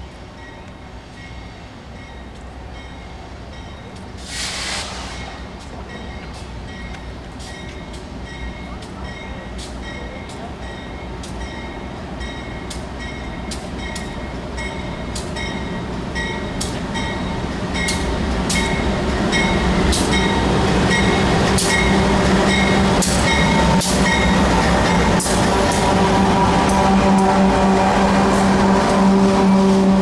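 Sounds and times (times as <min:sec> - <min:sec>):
freight train diesel rumble: 0:00.0 - 0:30.0.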